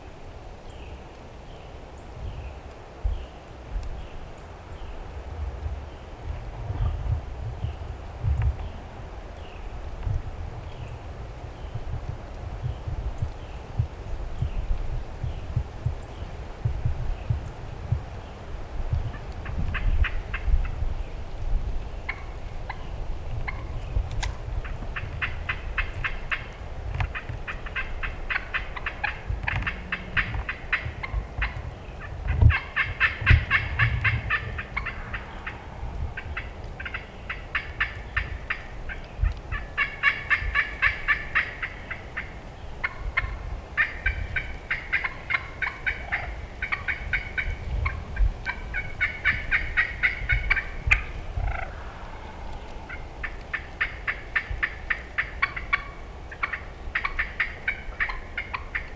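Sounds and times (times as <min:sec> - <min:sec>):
turkey gobbling: 0:22.1 - 0:22.9, 0:25.0 - 0:58.9
low rumble: 0:33.4 - 0:36.9.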